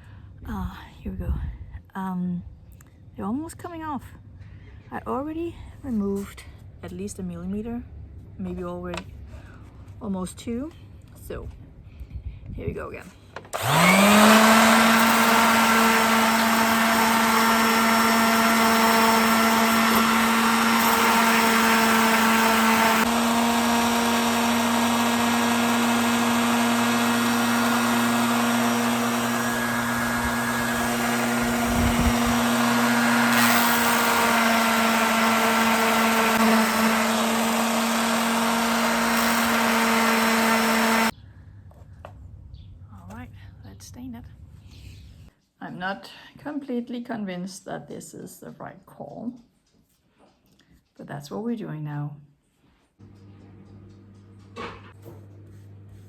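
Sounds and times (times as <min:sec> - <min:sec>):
electric sander running: 0:13.5 - 0:41.1.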